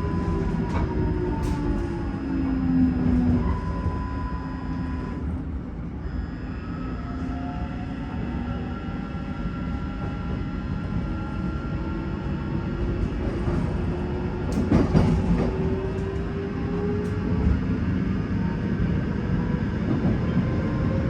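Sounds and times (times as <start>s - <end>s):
train rumbling with whine: 0.0s - 21.0s
train wheels clicking and knocking: 14.4s - 16.3s.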